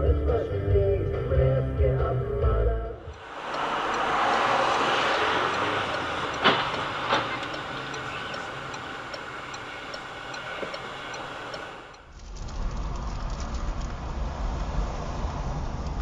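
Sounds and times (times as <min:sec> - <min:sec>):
moving vehicle rushing noise: 0:03.0 - 0:16.0
sharp knocks: 0:03.3 - 0:08.9.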